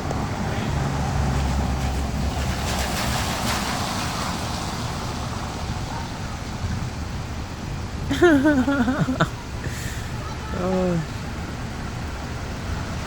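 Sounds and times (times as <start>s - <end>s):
vehicle passing with tyre hiss: 0.0s - 13.0s.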